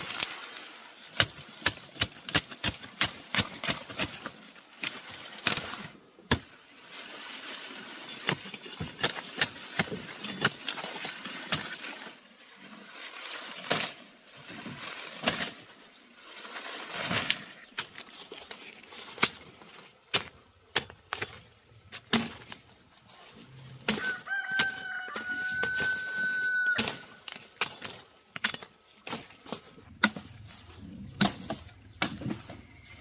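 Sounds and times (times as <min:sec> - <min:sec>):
sharp knocks and cracks: 0:01.1 - 0:06.5, 0:20.1 - 0:22.6
rustling: 0:10.0 - 0:20.2.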